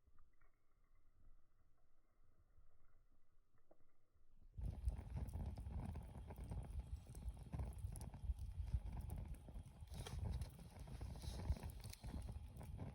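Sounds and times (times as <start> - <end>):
wood fire crackling: 4.6 - 12.9.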